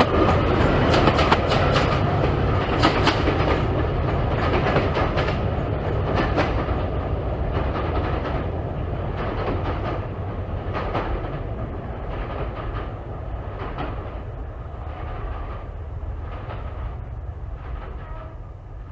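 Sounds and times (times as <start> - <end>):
train wheels clicking over rail joints: 0.0 - 18.4
low train rumble: 0.0 - 18.9.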